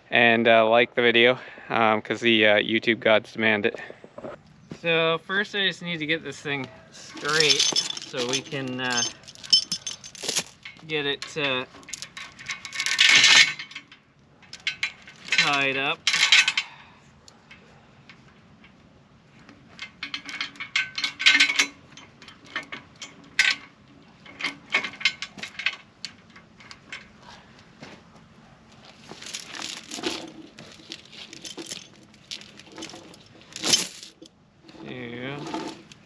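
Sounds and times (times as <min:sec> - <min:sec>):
steel chain clinking: 0:07.1 - 0:16.8, 0:19.8 - 0:27.1, 0:29.0 - 0:34.3.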